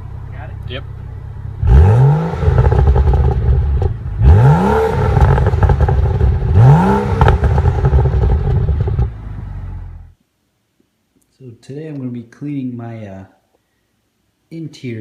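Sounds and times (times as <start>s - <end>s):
car engine revving: 0.0s - 10.1s.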